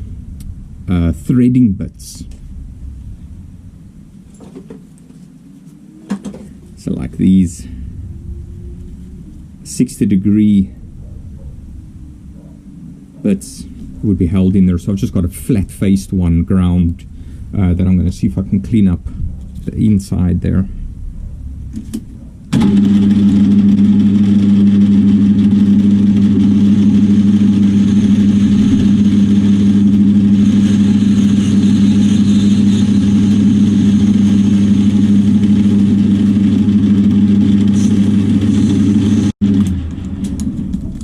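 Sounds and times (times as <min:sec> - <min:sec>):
metal lathe humming: 0:22.5 - 0:40.9.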